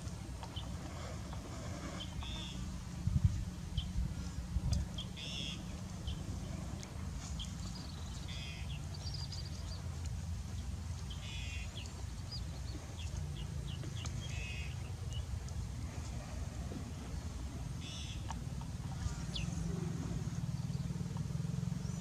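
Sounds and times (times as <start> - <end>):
steady low rumble: 0.0 - 22.0
birds chirping and trilling: 0.4 - 2.7, 4.9 - 22.0.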